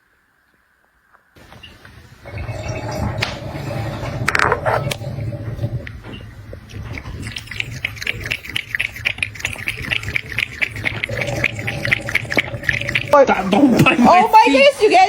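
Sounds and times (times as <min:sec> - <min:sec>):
low steady hum: 0:01.4 - 0:15.0.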